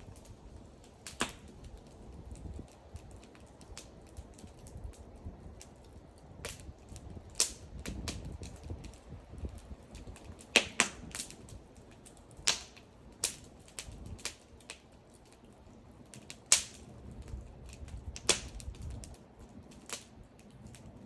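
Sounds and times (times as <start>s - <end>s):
bonfire crackling: 0.0s - 21.0s.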